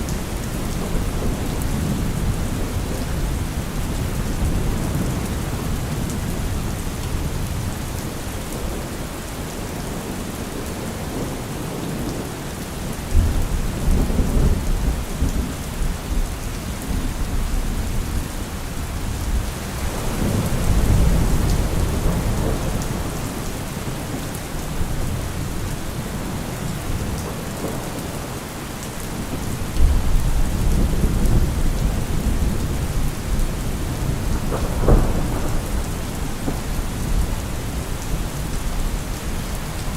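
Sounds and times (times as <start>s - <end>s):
steady rain: 0.0s - 39.9s
thunder rumbling: 13.1s - 28.4s, 29.0s - 39.9s.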